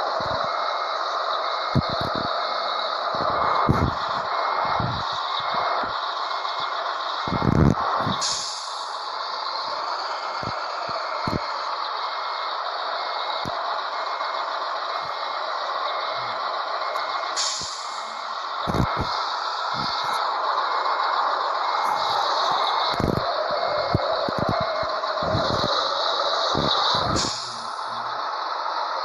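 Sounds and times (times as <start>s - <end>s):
reversing beeper: 0.0s - 28.3s
truck engine running: 0.0s - 29.0s
air brake hiss: 7.5s - 14.4s, 15.1s - 28.0s.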